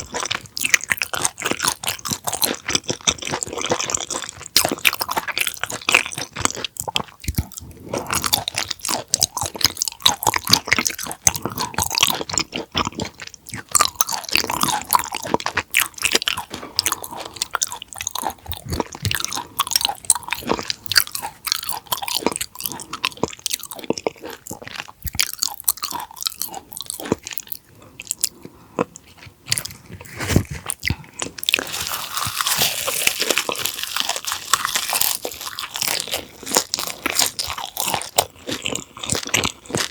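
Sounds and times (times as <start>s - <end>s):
chewing wet crunches: 0.0s - 39.9s.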